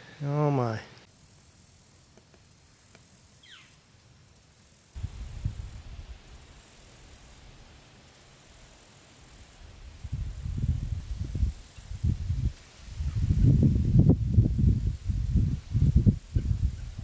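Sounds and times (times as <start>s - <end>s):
wind rumble on microphone: 5.0s - 6.4s, 9.6s - 17.0s.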